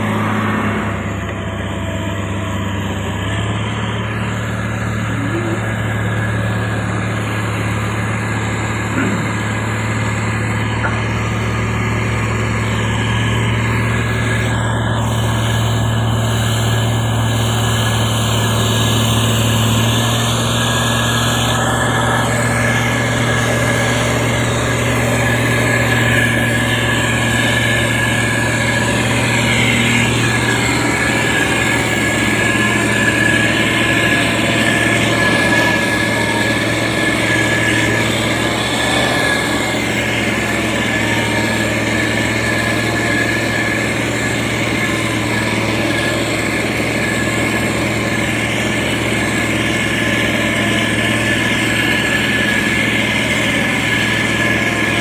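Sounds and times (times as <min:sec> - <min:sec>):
constant high whine: 0:00.0 - 0:55.0
diesel engine running: 0:00.0 - 0:55.0.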